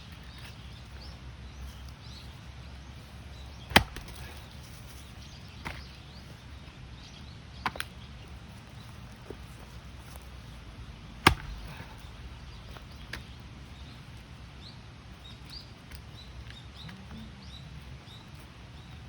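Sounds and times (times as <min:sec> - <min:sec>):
birds chirping: 0:00.0 - 0:19.0
axe striking log: 0:03.7 - 0:04.5, 0:11.0 - 0:13.4.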